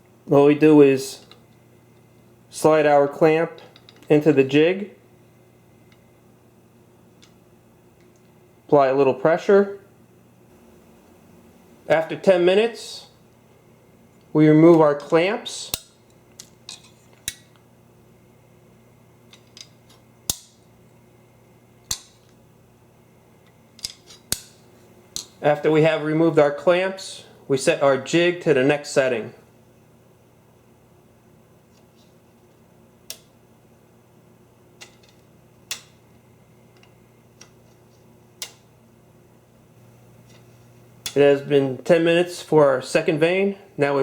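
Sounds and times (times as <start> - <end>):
faint low hum: 0.0 - 44.0
clamps snapping: 15.0 - 17.6, 19.3 - 20.6, 21.8 - 22.3, 23.7 - 25.4, 34.8 - 36.0, 38.4 - 38.7.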